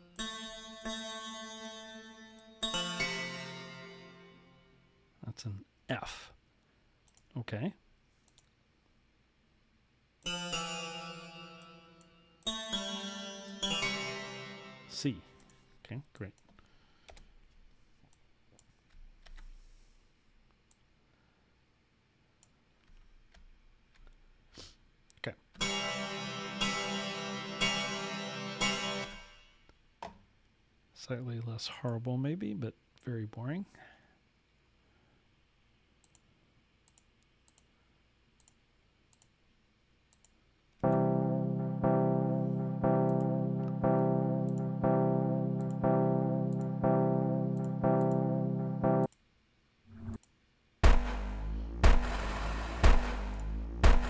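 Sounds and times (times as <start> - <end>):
computer mouse clicks: 8.2 - 8.6, 36.0 - 37.7, 38.4 - 39.4, 40.1 - 40.4
faint computer clicks: 8.2 - 8.6
synthesizer note: 10.3 - 15.3, 25.6 - 29.4, 40.8 - 49.1, 50.8 - 54.0.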